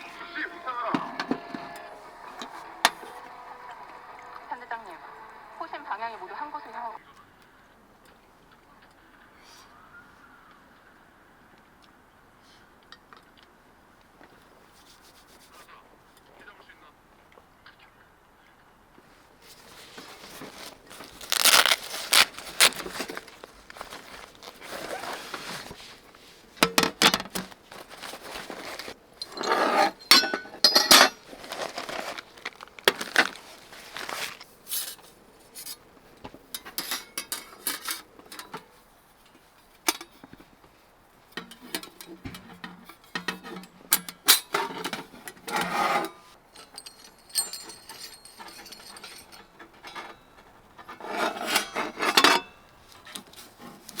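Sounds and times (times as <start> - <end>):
rustling and crinkling: 14.1 - 15.7, 19.0 - 43.8, 44.5 - 54.0
light clinks: 46.5 - 50.6.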